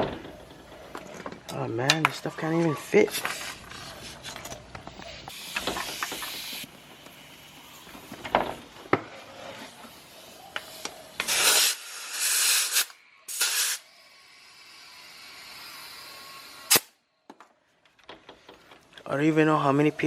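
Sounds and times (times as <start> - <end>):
compressed air hissing: 5.3 - 7.8, 9.9 - 16.9.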